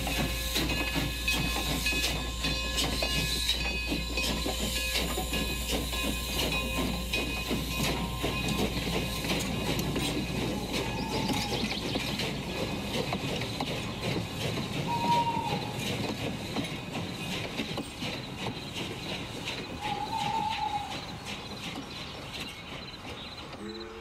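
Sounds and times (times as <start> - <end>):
high wheel squeal: 0.0 - 12.2, 19.7 - 21.3
train wheels clacking on rails: 0.0 - 24.0.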